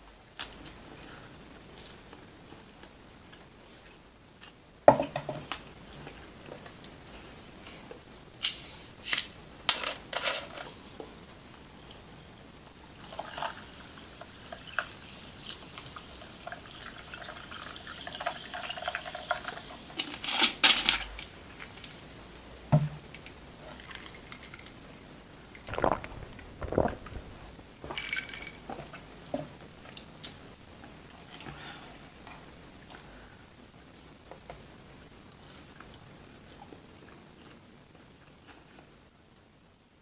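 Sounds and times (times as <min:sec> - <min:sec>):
liquid pouring: 0:25.6 - 0:28.6.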